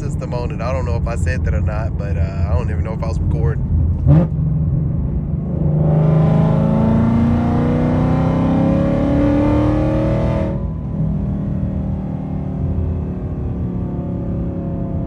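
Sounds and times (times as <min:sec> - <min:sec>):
car engine accelerating: 0:00.0 - 0:15.0
engine revving: 0:03.9 - 0:04.4, 0:05.4 - 0:10.7.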